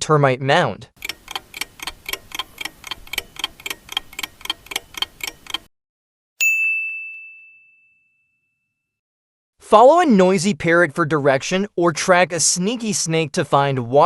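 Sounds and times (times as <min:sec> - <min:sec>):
clock ticking: 0:01.0 - 0:05.7
bell ding: 0:06.4 - 0:08.9.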